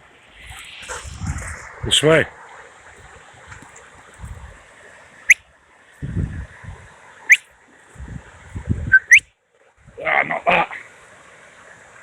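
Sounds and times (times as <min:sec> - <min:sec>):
low rumbling noise: 0:00.0 - 0:04.8
sharp rising whistles: 0:07.3 - 0:07.5, 0:08.9 - 0:09.3.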